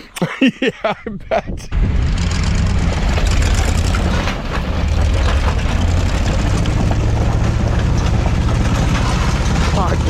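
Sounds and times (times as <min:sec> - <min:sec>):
tracked vehicle engine running: 0:01.7 - 0:10.0
knocks and rattles of bouncing: 0:02.3 - 0:10.0.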